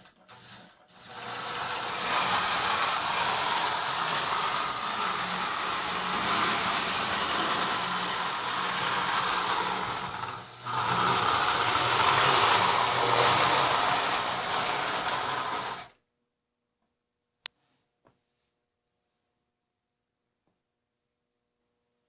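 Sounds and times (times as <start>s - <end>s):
toy train motor whir: 0.0s - 16.0s.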